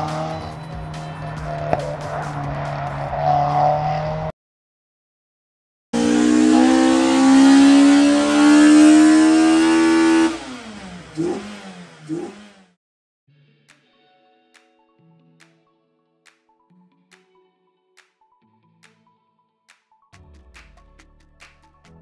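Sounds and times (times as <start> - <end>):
car engine running: 0.0 - 4.2, 6.0 - 12.7
car engine revving: 0.0 - 4.3, 6.0 - 12.8.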